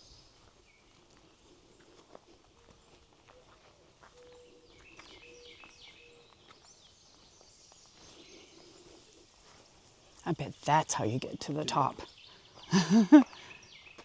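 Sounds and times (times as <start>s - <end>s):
faint bird chirps: 2.6s - 9.1s.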